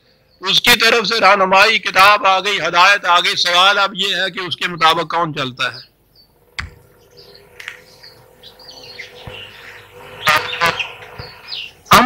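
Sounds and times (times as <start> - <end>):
steady low hum: 3.7 - 12.0
faint bird chirps: 5.7 - 12.0
short sharp knocks: 6.6 - 6.9.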